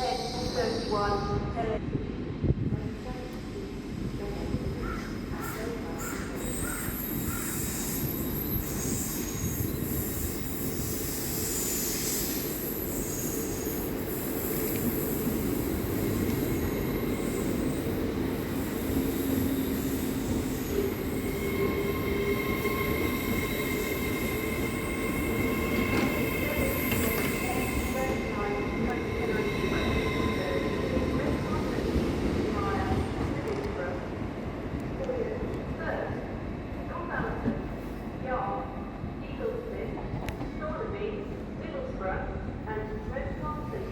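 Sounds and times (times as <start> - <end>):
train wheels squealing: 0.0 - 1.5, 5.0 - 31.6
low train rumble: 0.0 - 43.9.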